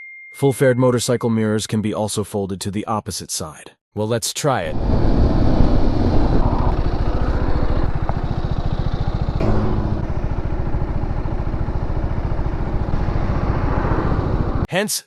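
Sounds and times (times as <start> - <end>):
motorcycle engine idling: 6.0 - 14.6.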